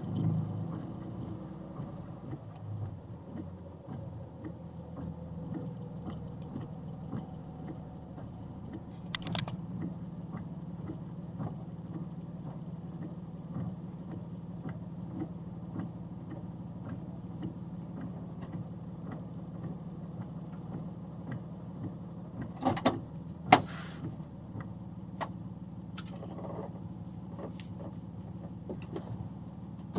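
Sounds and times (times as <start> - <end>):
vehicle engine idling: 0.0 - 29.9.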